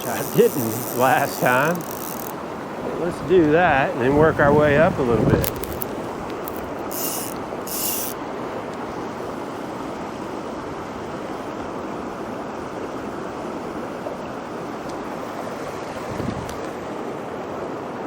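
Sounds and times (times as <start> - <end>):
mountain stream rushing: 0.0 - 18.0.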